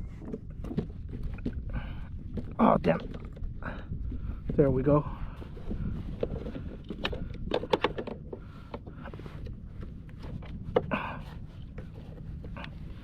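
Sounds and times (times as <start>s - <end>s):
steady low rumble: 0.0s - 13.0s
sharp knocks and clicks: 6.9s - 8.8s.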